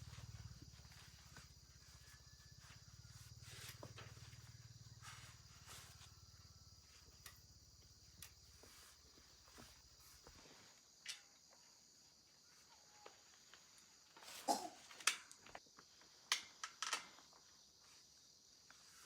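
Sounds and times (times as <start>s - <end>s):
crickets chirring: 0.0s - 19.0s
small clicks and knocks: 16.2s - 17.4s.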